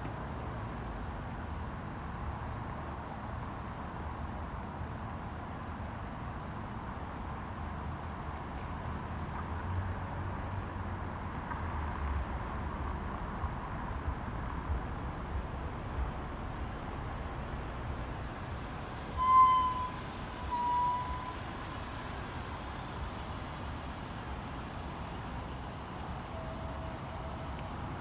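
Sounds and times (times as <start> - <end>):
train running: 16.2 - 28.0.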